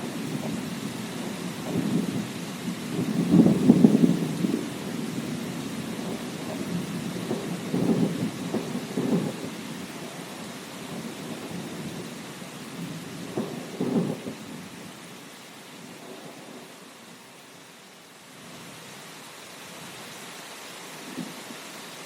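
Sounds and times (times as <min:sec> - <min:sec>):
thunder rumbling: 0:00.0 - 0:15.0
steady rain: 0:00.0 - 0:22.0.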